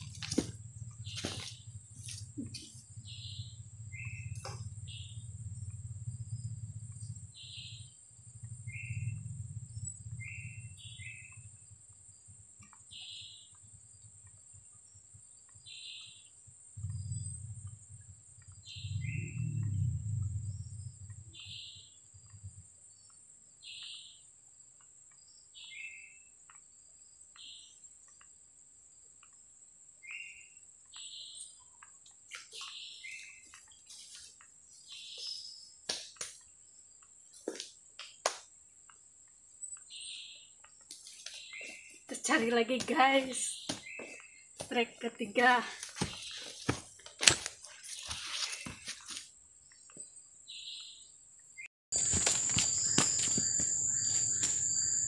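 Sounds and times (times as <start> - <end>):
low rumble: 0.0 - 11.8, 16.8 - 22.6
high insect drone: 52.0 - 55.0.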